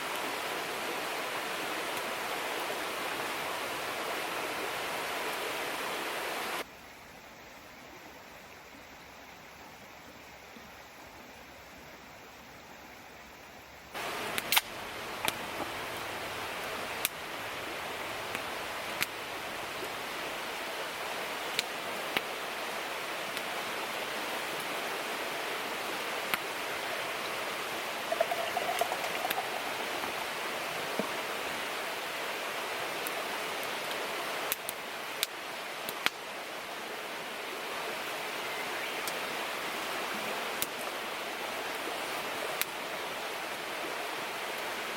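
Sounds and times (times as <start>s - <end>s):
river rushing: 0.0s - 6.6s, 14.0s - 44.9s.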